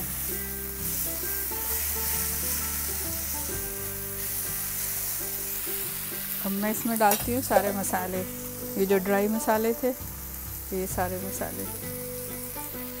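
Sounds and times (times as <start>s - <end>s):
soft background music: 0.0s - 13.0s
vegetables sizzling in a frying pan: 0.0s - 13.0s
spatula stirring in a pan: 0.7s - 6.4s.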